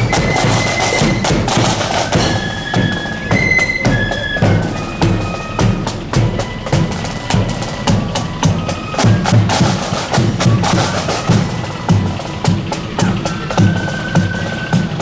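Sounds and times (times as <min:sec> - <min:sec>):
bass drum beats: 0:00.0 - 0:03.0
flutes playing melody: 0:00.0 - 0:15.0
snare drum beats: 0:00.0 - 0:15.0.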